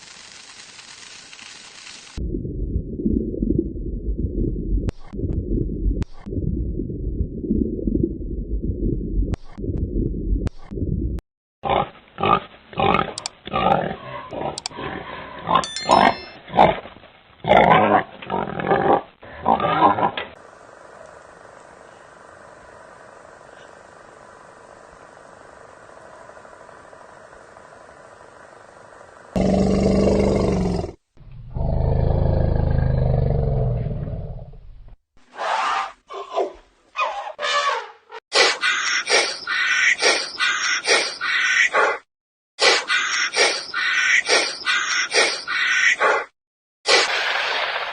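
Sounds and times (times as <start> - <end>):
low rumbling: 2.2 - 11.2
pig grunting and squealing: 11.6 - 16.8, 17.4 - 20.3, 29.4 - 34.4
large animal roaring calls: 29.4 - 34.6.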